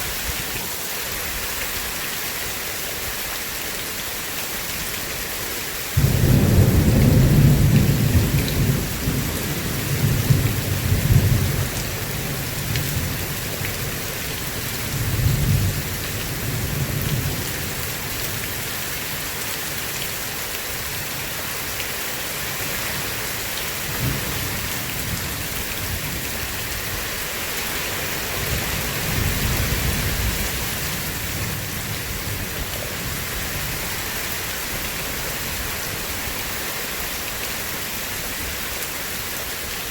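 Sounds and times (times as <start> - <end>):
steady rain: 0.0 - 39.9
thunder rumbling: 6.0 - 13.2.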